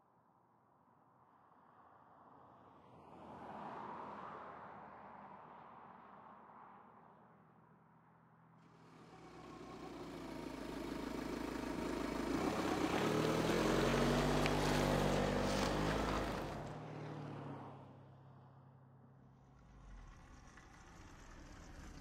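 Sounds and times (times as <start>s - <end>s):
car engine passing: 8.7s - 18.0s, 19.4s - 22.0s
tyre noise on road: 9.0s - 17.6s.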